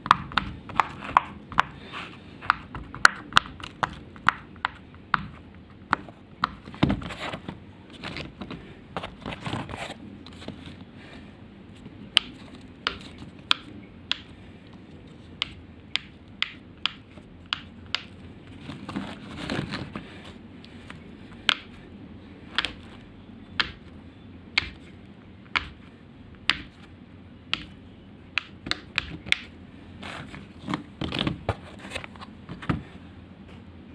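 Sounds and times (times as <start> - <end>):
soft rustling of toy handled: 5.4 - 13.4, 18.2 - 21.4, 29.8 - 33.7.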